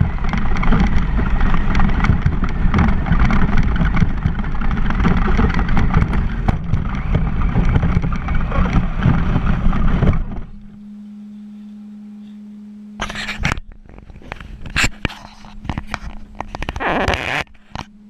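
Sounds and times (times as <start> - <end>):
rc truck driving: 0.0 - 10.8
small rattles and knocks: 0.0 - 10.8, 13.0 - 17.9
steady low hum: 0.0 - 18.0.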